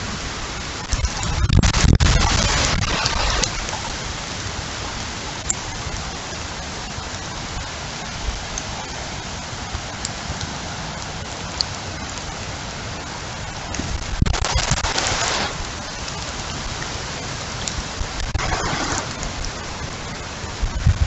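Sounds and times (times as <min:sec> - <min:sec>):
heavy rain pouring: 0:00.0 - 0:21.0
low wind rumble: 0:00.0 - 0:21.0.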